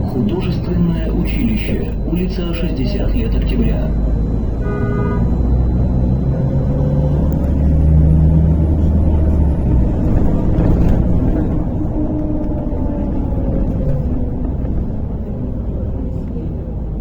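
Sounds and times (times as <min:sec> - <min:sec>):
faint whine: 0:00.0 - 0:11.8
bus engine low rumble: 0:00.0 - 0:17.0.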